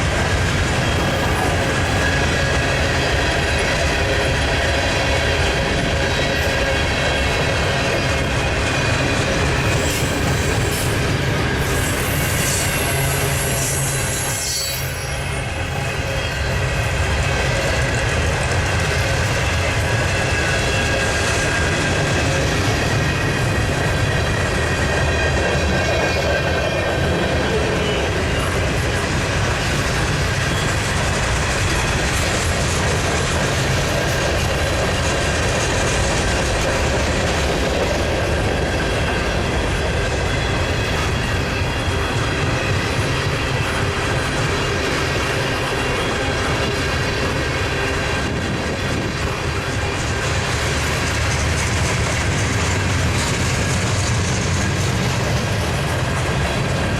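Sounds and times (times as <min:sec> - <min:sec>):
train wheels rumbling on rails: 0:00.0 - 0:56.9
high wheel squealing: 0:09.6 - 0:16.4.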